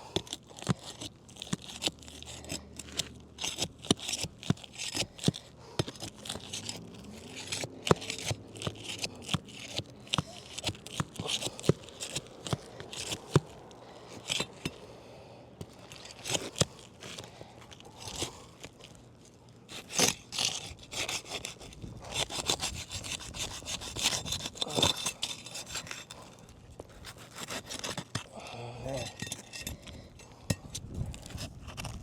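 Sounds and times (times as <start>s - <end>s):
pry bar clicking and scraping: 0.1s - 14.9s, 15.6s - 19.0s, 19.7s - 32.0s
shingles tearing loose: 19.7s - 28.3s.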